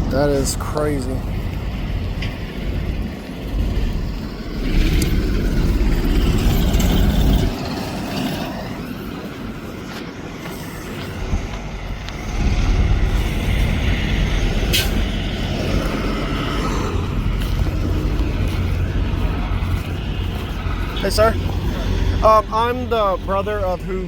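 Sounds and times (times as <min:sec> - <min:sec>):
heavy vehicle engine rumbling: 0:00.0 - 0:24.0.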